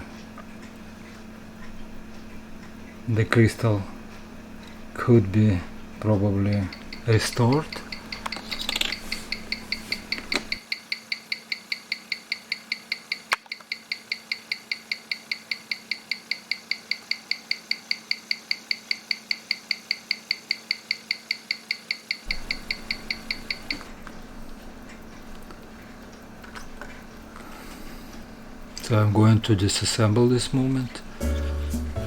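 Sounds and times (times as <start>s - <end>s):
watch ticking amplified: 0.2s - 13.2s, 22.2s - 27.4s.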